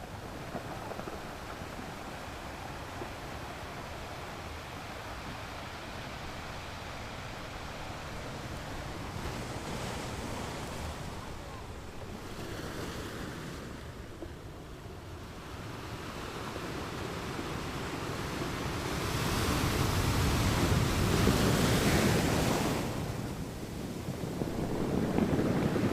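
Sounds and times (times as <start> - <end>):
ocean surf washing ashore: 0.0 - 25.9.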